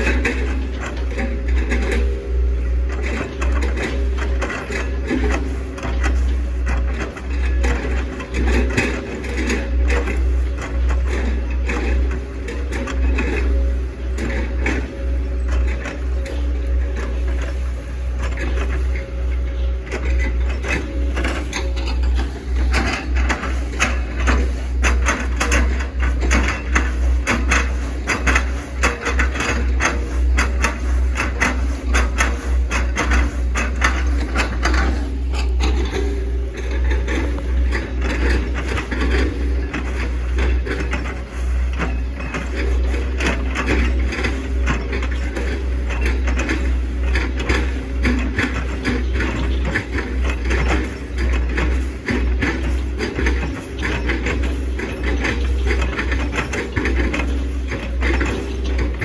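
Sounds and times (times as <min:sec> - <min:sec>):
excavator engine droning: 0:00.0 - 0:59.0.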